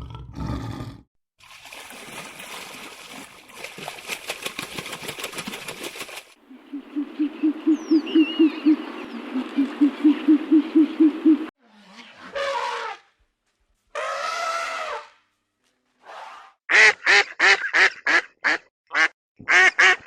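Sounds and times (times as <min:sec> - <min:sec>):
animal low hoots: 0:06.5 - 0:11.5.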